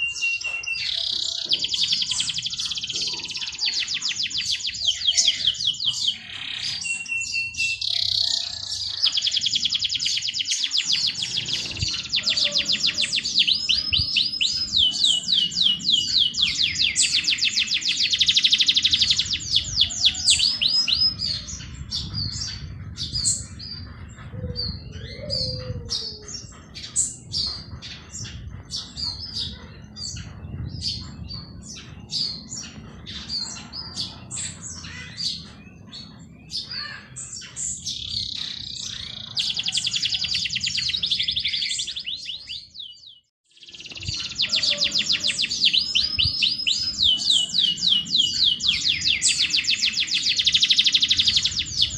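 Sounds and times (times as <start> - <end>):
songbirds trilling and chirping: 0.0 - 51.9.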